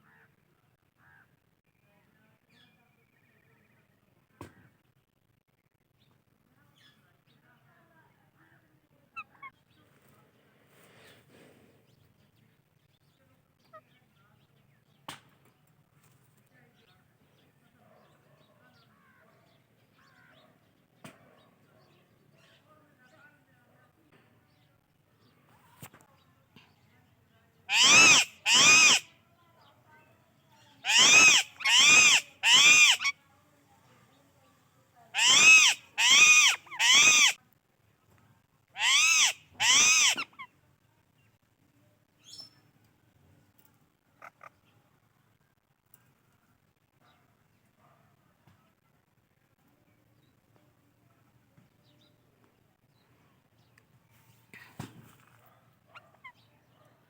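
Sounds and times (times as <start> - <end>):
parrots chirping: 27.7 - 29.0, 30.8 - 33.1, 35.2 - 37.4, 38.8 - 40.3
parakeet calling: 27.7 - 29.1, 30.8 - 33.1, 35.2 - 37.4, 38.8 - 40.4.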